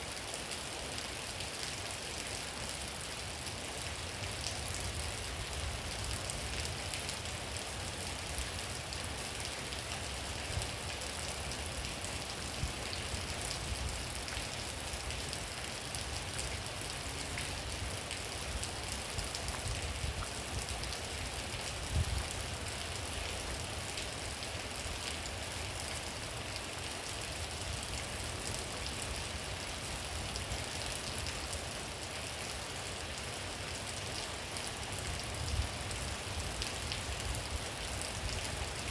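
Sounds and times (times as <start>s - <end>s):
steady rainfall: 0.0s - 38.9s
sharp raindrops: 0.1s - 38.9s.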